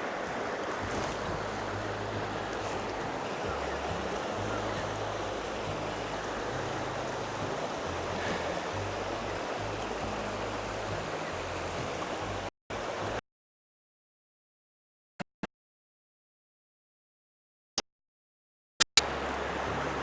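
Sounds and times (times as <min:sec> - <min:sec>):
stream water rushing: 0:00.0 - 0:13.2, 0:19.0 - 0:20.0.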